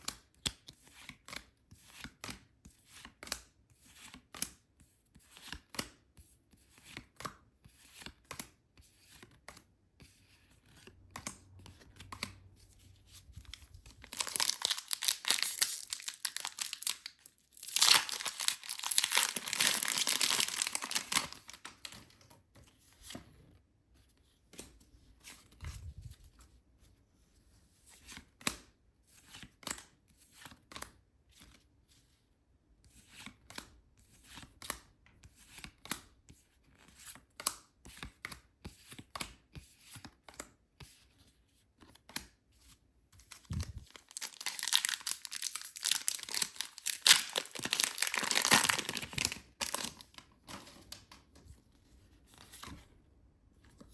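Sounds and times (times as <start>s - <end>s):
packaging crinkling: 13.5s - 21.9s, 43.4s - 50.2s
packaging tearing: 14.0s - 21.8s, 43.5s - 50.2s.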